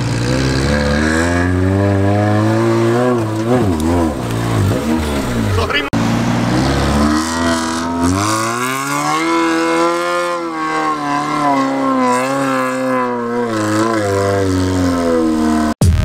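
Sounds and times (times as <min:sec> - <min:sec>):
engine revving hard: 0:00.0 - 0:15.8.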